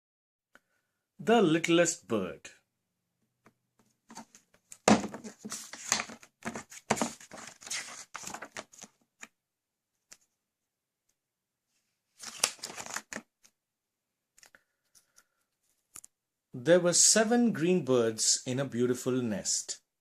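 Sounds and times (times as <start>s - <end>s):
paper pages rustling: 4.1s - 9.3s, 12.1s - 13.6s.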